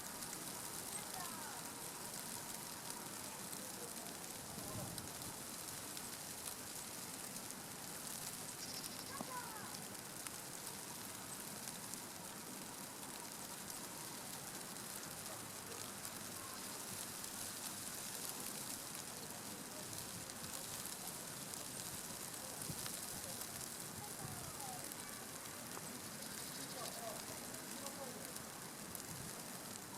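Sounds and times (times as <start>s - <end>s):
fine crackling patter: 0.0s - 29.9s
outdoor hiss: 0.0s - 29.9s
faint bird chirps: 8.5s - 9.2s, 26.2s - 27.1s.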